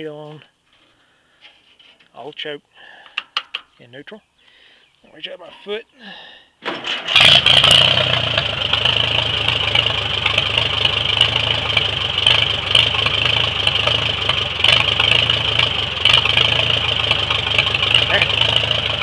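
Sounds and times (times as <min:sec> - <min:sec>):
tractor engine starting and idling: 0:06.6 - 0:19.0.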